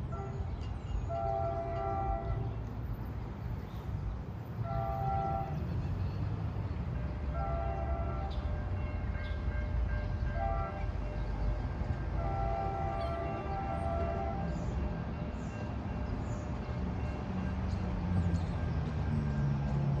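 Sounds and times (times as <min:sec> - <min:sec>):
train horn blasts: 0:00.0 - 0:02.8, 0:04.6 - 0:05.8, 0:07.0 - 0:15.1
train rumbling: 0:00.0 - 0:20.0.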